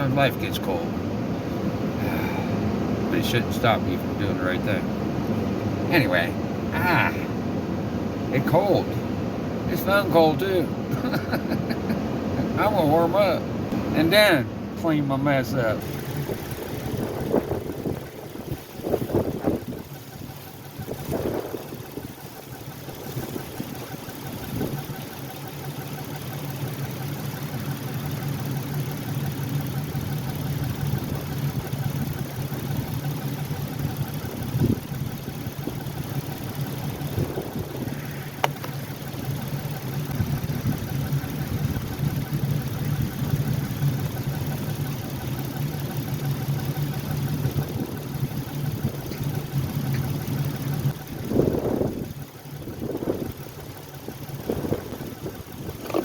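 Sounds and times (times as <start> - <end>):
car engine idling: 0.0 - 56.0
sharp click: 38.4 - 38.8.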